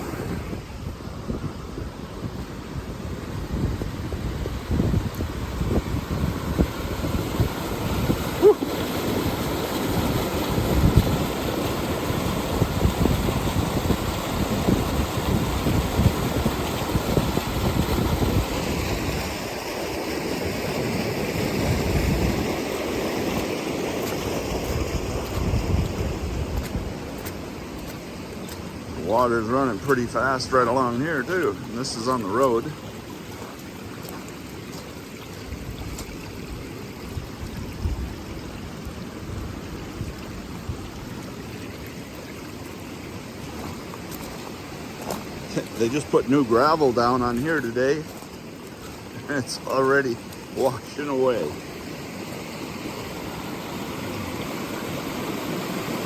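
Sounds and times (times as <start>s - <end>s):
wind buffeting microphone: 0.0s - 19.6s, 20.4s - 31.5s, 35.4s - 41.4s
floodwater rushing: 0.0s - 56.0s
heavy rain: 3.4s - 34.9s.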